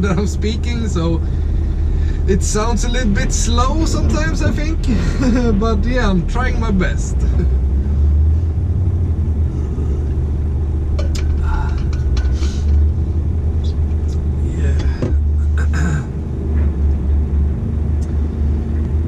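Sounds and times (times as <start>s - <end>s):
truck diesel engine drone: 0.0s - 19.0s.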